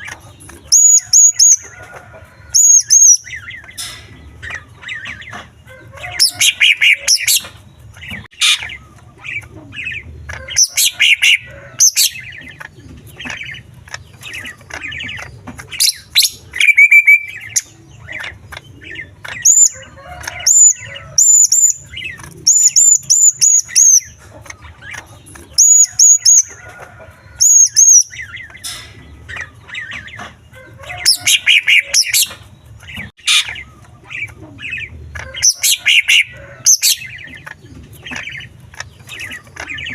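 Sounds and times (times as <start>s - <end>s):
bird singing chirps and whistles: 15.8s - 17.7s.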